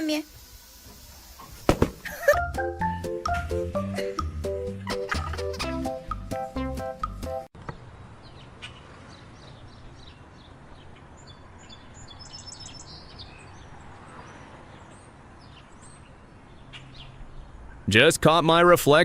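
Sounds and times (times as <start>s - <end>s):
small birds chirping: 7.6s - 17.9s.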